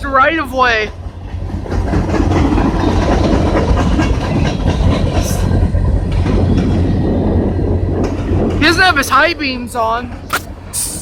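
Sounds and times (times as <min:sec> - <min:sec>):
train wheels clacking on rails: 0:00.7 - 0:08.9
brief hiss: 0:10.3 - 0:11.0.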